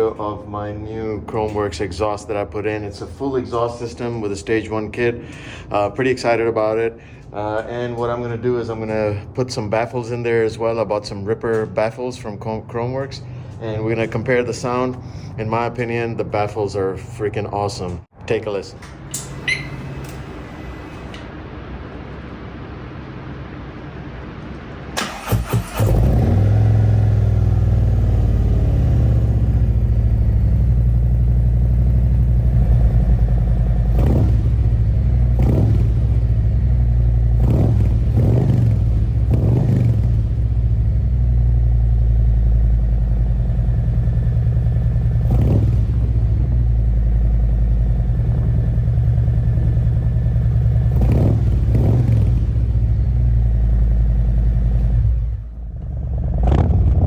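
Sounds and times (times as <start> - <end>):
motorcycle engine starting and idling: 0.0 - 18.1, 18.7 - 21.6, 24.4 - 57.0
motorcycle engine revving: 25.0 - 57.0.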